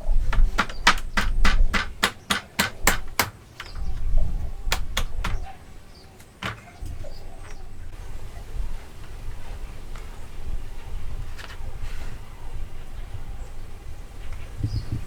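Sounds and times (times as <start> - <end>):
hammer blows on wood: 0.0 - 3.9, 4.7 - 5.6.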